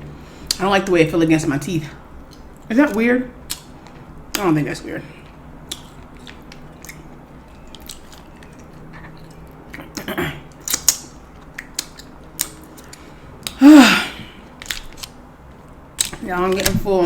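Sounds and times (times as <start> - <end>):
chewing and biting crab: 5.6 - 13.6
short falling vocal sound: 13.6 - 14.4.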